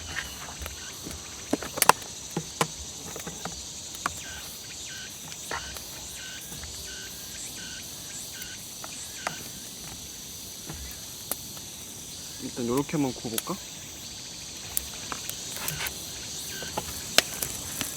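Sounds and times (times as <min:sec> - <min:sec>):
insects chirping: 0:00.0 - 0:17.9
cooking gear clicking and knocking: 0:14.4 - 0:17.9.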